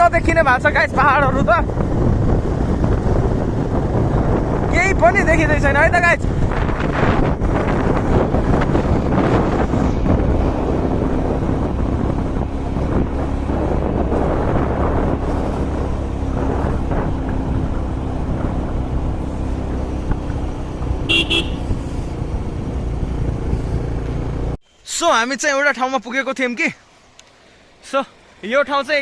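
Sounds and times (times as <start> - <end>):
moving vehicle rumble: 0.0 - 29.0
road wind: 0.0 - 29.0
vehicle horn toot: 21.1 - 21.8.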